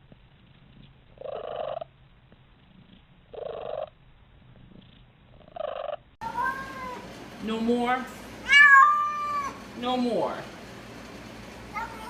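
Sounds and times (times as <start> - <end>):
cat rough calls: 8.4 - 9.6.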